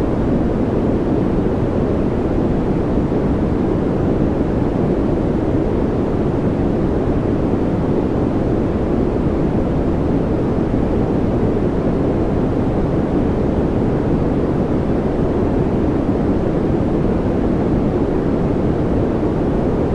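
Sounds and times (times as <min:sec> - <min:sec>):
deep steady white noise rush: 0:00.0 - 0:19.9.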